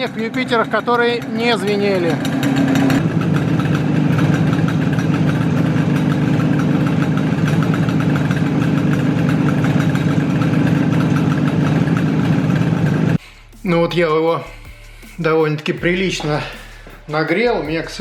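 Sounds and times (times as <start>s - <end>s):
motorcycle engine idling with knock: 0.0s - 13.2s.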